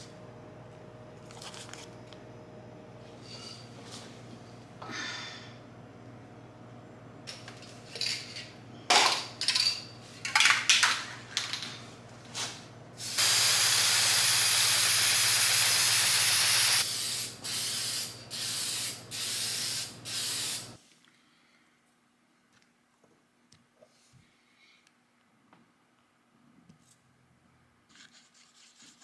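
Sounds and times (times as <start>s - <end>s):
spray paint can spraying: 13.0s - 20.8s.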